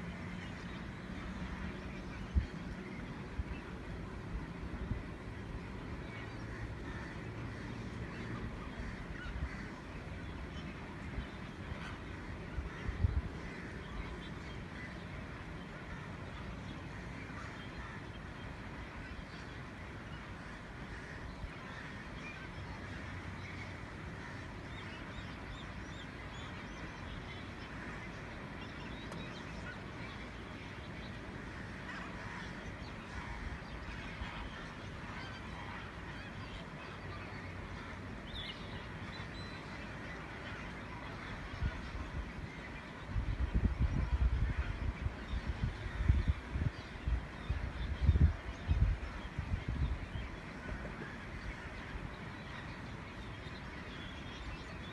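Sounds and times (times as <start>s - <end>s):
flamingos honking: 38.8s - 46.1s.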